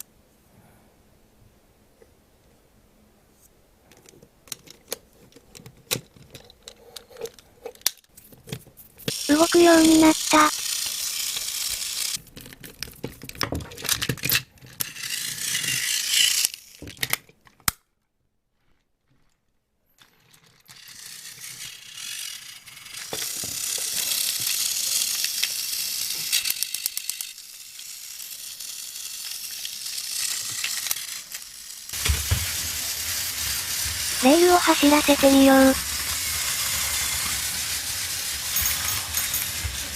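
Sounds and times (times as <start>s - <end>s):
toy train motor whirring: 9.0s - 12.9s, 13.8s - 17.2s, 20.1s - 39.9s.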